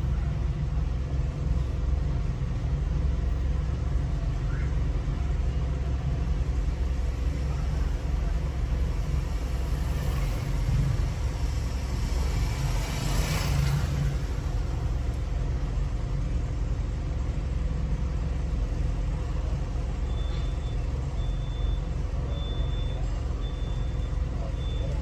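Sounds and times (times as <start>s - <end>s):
car engine idling: 0.0s - 25.0s
motorcycle passing: 9.5s - 15.0s
short high-pitched beep: 20.1s - 25.0s.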